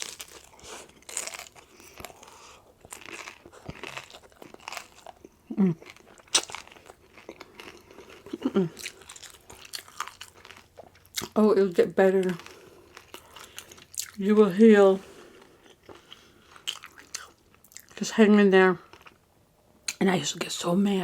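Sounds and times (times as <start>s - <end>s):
crunching of crisp tacos: 0.0s - 14.3s, 15.0s - 18.0s, 18.8s - 19.2s.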